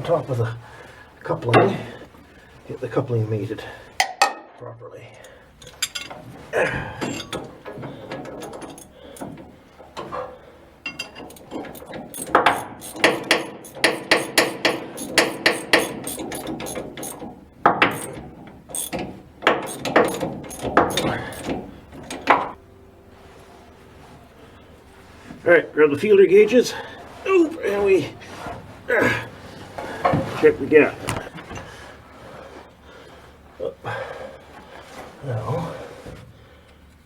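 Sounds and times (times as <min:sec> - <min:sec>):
ratchet wrench clicking: 0:10.9 - 0:21.6.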